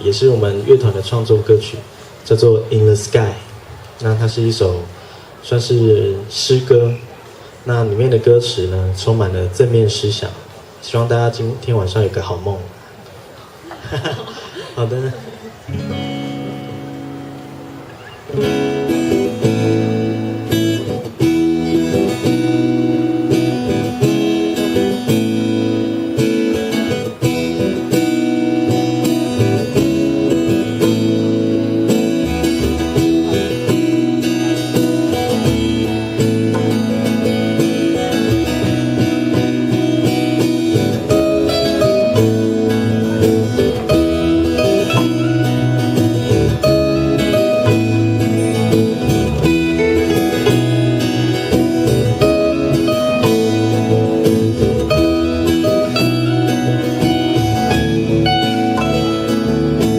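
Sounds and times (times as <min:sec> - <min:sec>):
acoustic guitar strumming: 0:12.7 - 0:59.9
live band playing: 0:15.5 - 0:59.9.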